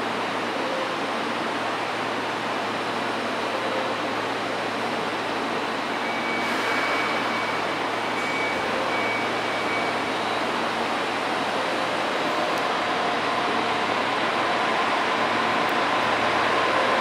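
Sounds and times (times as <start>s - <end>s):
railcar equipment hum: 0.0s - 17.0s.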